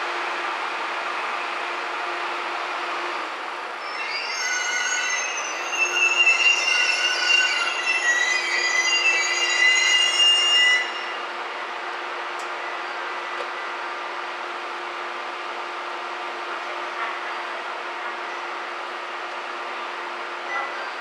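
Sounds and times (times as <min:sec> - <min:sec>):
railcar steady hum: 0:00.0 - 0:21.0
train brakes squealing: 0:03.1 - 0:11.4, 0:20.4 - 0:21.0.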